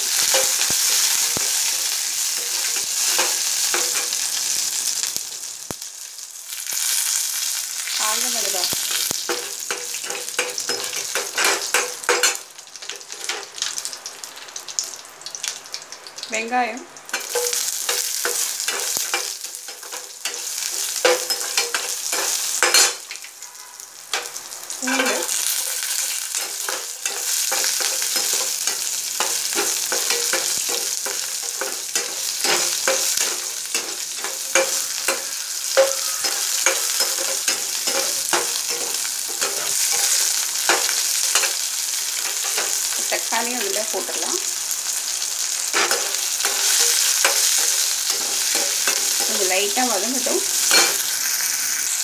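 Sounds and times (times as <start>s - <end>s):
spices sizzling in hot oil: 0.0s - 52.0s
metal ladle scraping pan: 17.2s - 43.2s.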